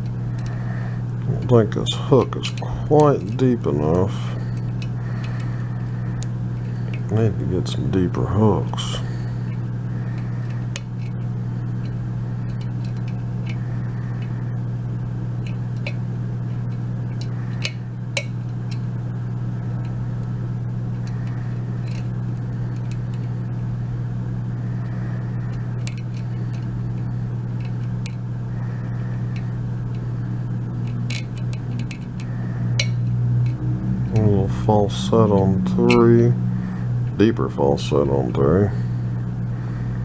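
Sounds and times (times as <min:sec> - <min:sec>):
low hum: 0:00.0 - 0:40.0
lock pick clicks: 0:30.8 - 0:33.6.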